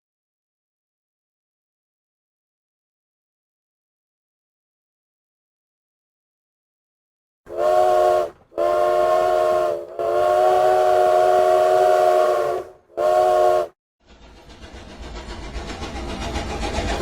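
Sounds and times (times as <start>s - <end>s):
train whistle blasts: 7.5s - 13.8s
train rumble: 7.5s - 17.0s.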